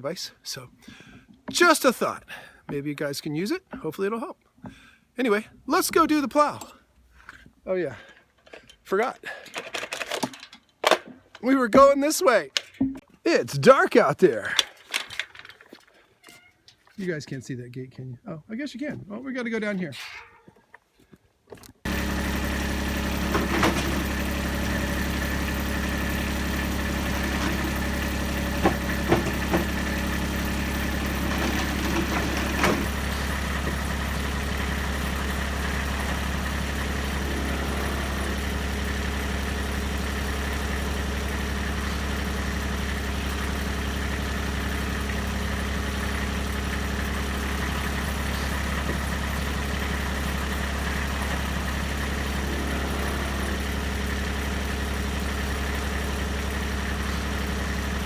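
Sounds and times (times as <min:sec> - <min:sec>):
diesel engine idling: 0:21.9 - 0:58.0.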